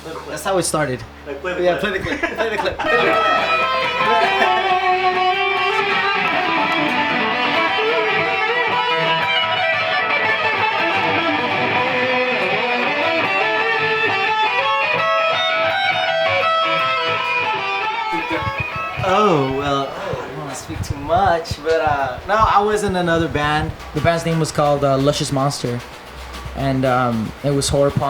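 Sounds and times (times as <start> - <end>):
electric guitar strummed chords: 2.8 - 24.9.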